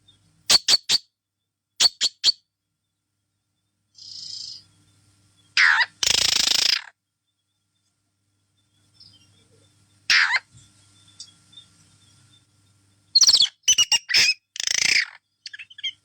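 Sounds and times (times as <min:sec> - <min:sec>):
harsh parrot squawk: 0:00.5 - 0:01.0, 0:01.8 - 0:02.4, 0:05.6 - 0:06.9, 0:10.1 - 0:10.5, 0:13.2 - 0:15.9
parrot chirping: 0:00.5 - 0:01.0, 0:01.8 - 0:02.4, 0:05.6 - 0:06.8, 0:13.2 - 0:16.0
parrot screech: 0:10.1 - 0:10.5.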